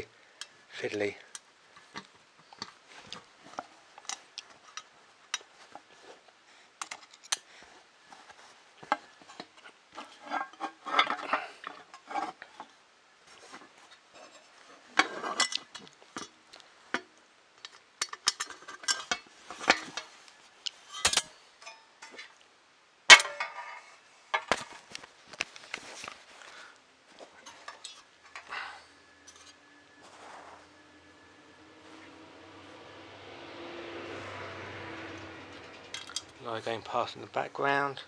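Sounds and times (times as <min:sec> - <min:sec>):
metal parts and tools clinking: 0:20.8 - 0:22.3, 0:27.4 - 0:29.8, 0:35.1 - 0:36.5
passing vehicle hum: 0:29.0 - 0:36.9.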